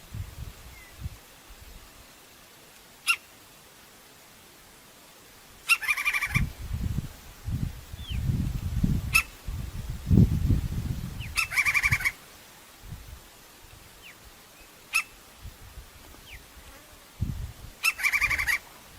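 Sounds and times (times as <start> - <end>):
woodpecker rattling call: 3.0 - 3.3, 5.6 - 6.5, 9.1 - 9.4, 11.2 - 12.2, 14.9 - 15.2, 17.8 - 18.6
woodpecker sharp call notes: 3.0 - 3.3, 5.6 - 6.5, 9.1 - 9.4, 11.2 - 12.2, 14.9 - 15.2, 17.8 - 18.6.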